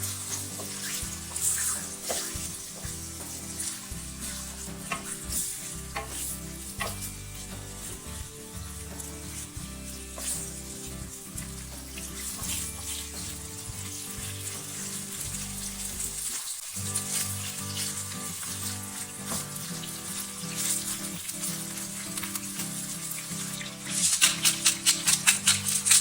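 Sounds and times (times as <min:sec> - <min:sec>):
background music: 0:00.0 - 0:26.0
food sizzling in a pan: 0:00.0 - 0:26.0.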